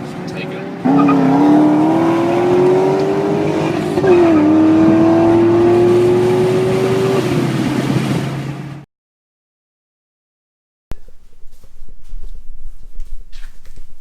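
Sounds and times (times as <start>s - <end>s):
car engine accelerating hard: 0.0s - 8.8s.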